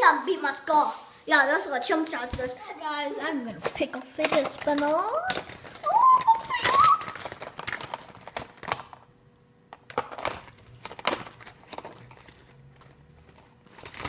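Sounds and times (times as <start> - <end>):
plastic toys clicking and clattering: 3.2 - 9.1, 9.7 - 14.0.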